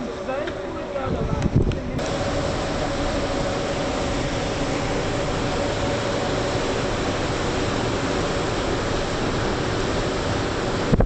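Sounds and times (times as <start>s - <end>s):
faint boat engine hum: 0.0s - 11.0s
rush of wind and water: 0.0s - 11.0s.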